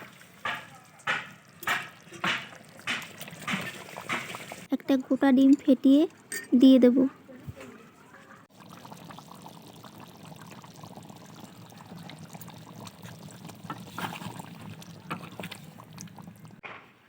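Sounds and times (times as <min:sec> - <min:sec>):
gravy bubbling in a pan: 0:00.0 - 0:04.7, 0:07.9 - 0:16.6.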